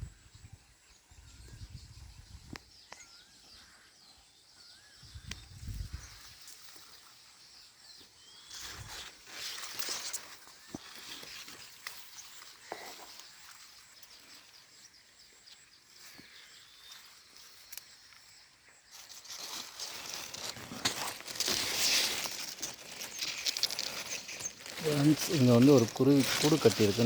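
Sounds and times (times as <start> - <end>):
dry leaves rustling and crackling: 8.5 - 14.5, 18.9 - 27.0
footsteps: 19.4 - 27.0.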